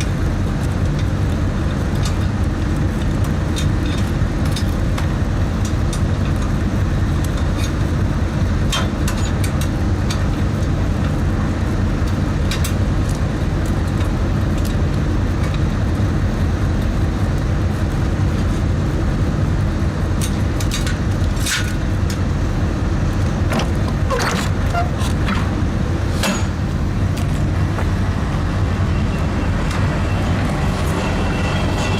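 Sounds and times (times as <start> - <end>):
truck engine idling: 9.6 - 31.9.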